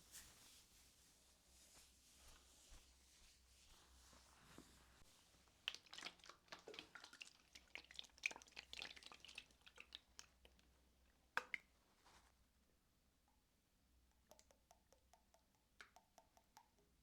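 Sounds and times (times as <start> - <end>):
wet clicking of massage oil: 11.4 - 11.7, 14.1 - 17.0.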